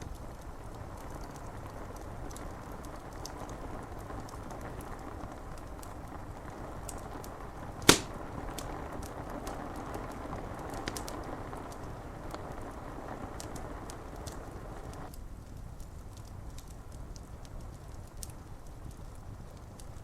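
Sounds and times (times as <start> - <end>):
rain on window glass: 0.0 - 8.0, 8.6 - 20.0
wood fire crackling: 0.0 - 20.0
loud sharp fire pop: 7.9 - 8.2.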